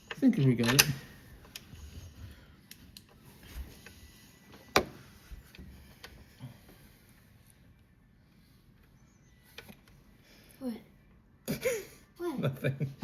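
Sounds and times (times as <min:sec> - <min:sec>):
parts and tools clicking: 0:00.0 - 0:01.7.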